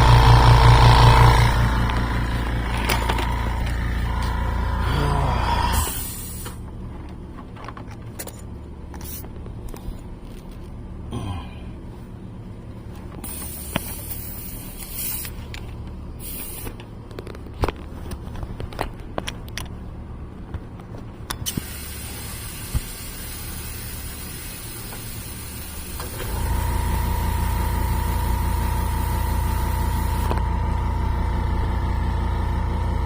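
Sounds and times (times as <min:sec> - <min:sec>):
low hum: 0:00.0 - 0:21.4, 0:25.6 - 0:33.0
air hissing: 0:05.3 - 0:06.6, 0:13.2 - 0:15.4, 0:16.2 - 0:16.8, 0:21.4 - 0:26.6.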